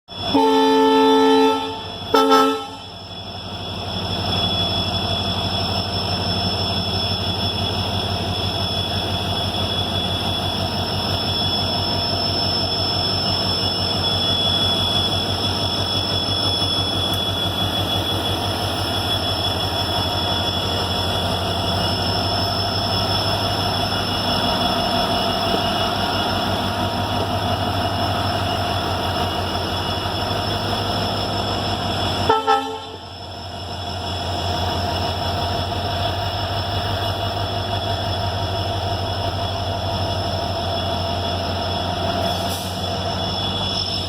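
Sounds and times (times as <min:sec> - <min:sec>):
locomotive horn blasts: 0:00.3 - 0:02.9, 0:32.3 - 0:33.0.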